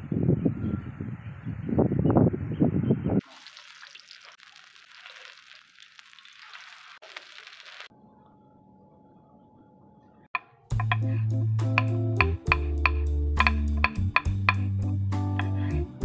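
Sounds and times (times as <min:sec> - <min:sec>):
kebabs sizzling in oil: 0:03.2 - 0:07.9.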